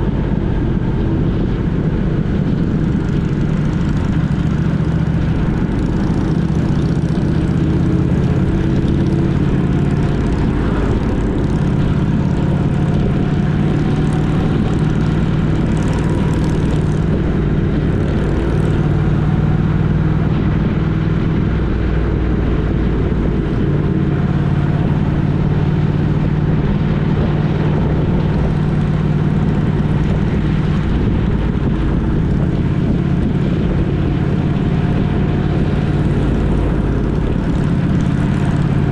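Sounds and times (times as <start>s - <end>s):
vehicle engine droning: 0.0s - 38.9s.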